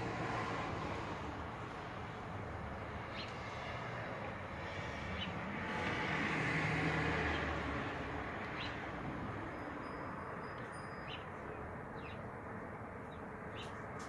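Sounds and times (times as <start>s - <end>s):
vehicle passing by: 0.0s - 10.2s
bird chirps: 9.8s - 12.3s.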